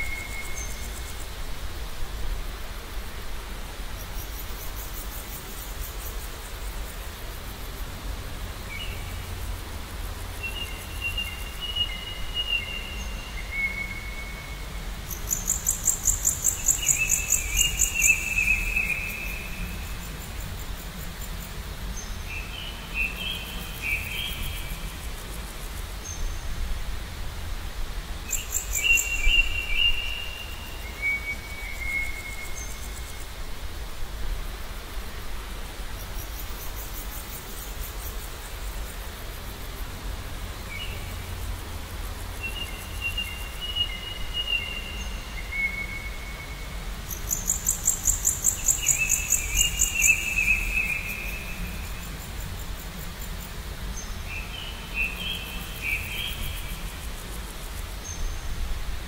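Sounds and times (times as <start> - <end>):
birds whistling song: 10.4 - 19.6, 28.3 - 33.0, 42.4 - 52.1.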